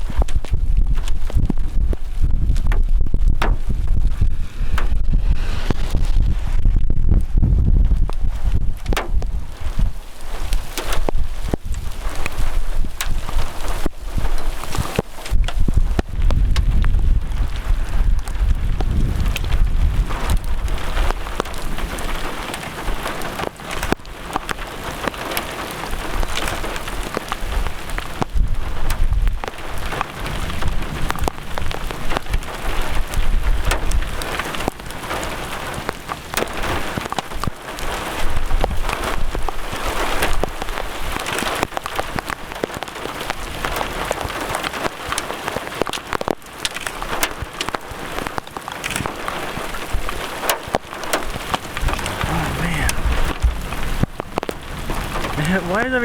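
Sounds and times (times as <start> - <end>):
raindrops hitting close: 0.0 - 56.0
low rumble: 2.2 - 9.5, 51.8 - 55.4
heavy rain hissing: 3.7 - 8.6, 49.0 - 56.0.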